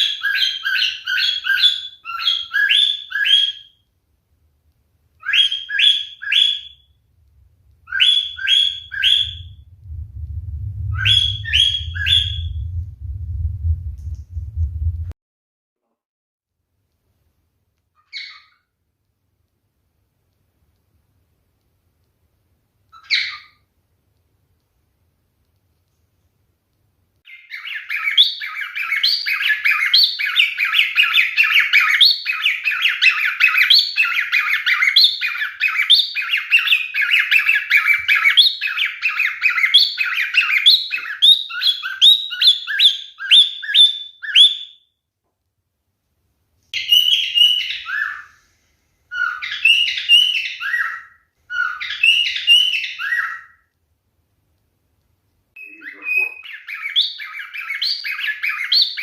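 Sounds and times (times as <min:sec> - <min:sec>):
cockatiel chirping and whistling: 0:00.0 - 0:03.8, 0:05.2 - 0:07.0, 0:07.8 - 0:09.6, 0:10.9 - 0:12.6, 0:18.0 - 0:18.6, 0:22.9 - 0:23.6, 0:27.3 - 0:44.9, 0:46.8 - 0:48.3, 0:49.1 - 0:53.6, 0:55.6 - 0:59.0.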